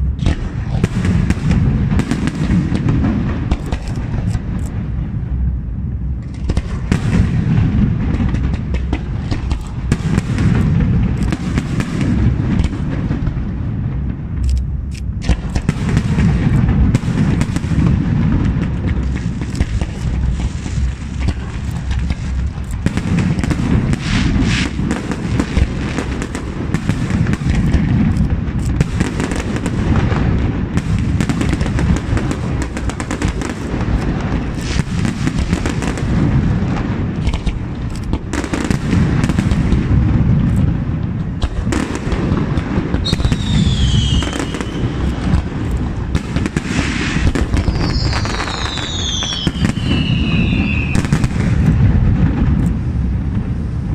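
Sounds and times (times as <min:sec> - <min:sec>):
fireworks booming and crackling: 0:00.0 - 0:53.9
falling firework whistles: 0:43.0 - 0:45.4, 0:46.5 - 0:51.6.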